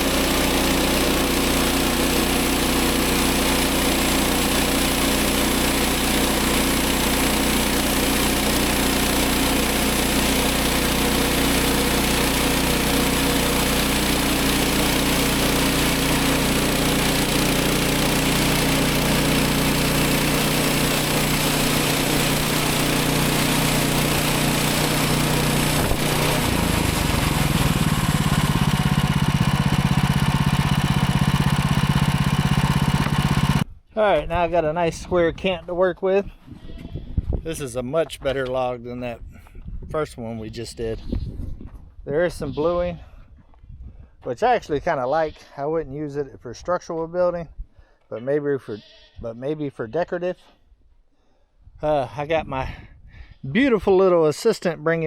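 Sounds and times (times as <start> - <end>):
sawmill engine running: 0.0 - 33.7.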